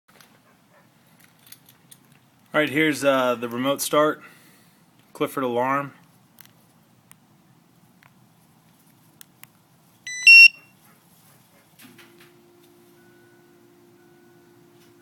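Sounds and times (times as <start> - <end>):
car alarm chirp: 10.1 - 10.7.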